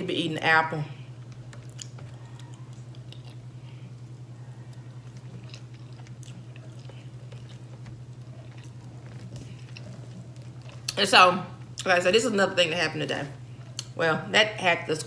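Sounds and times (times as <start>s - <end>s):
steady low hum: 0.0s - 15.0s
person chewing and biting: 1.2s - 11.0s.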